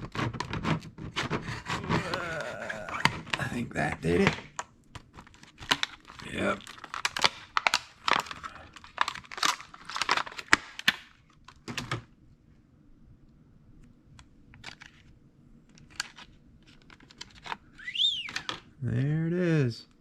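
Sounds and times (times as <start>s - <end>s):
plastic packaging crackling: 1.6s - 12.0s, 15.7s - 18.6s.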